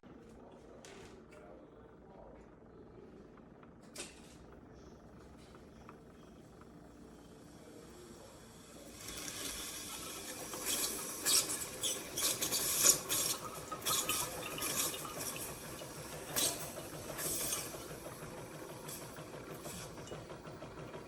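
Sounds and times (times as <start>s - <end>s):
coffee maker hissing and sputtering: 5.6s - 21.0s.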